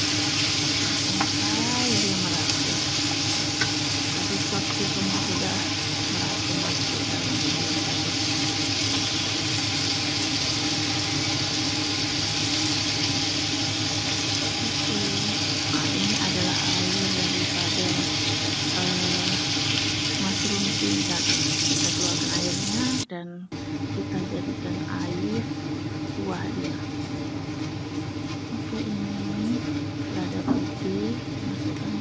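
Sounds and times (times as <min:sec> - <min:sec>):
chicken sizzling in a wok: 0:00.0 - 0:23.1
low hum: 0:00.0 - 0:32.0.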